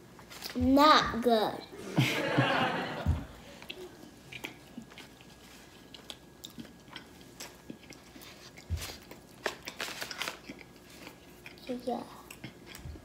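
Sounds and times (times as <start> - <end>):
person chewing crunchy food: 3.5 - 11.6, 12.2 - 13.0.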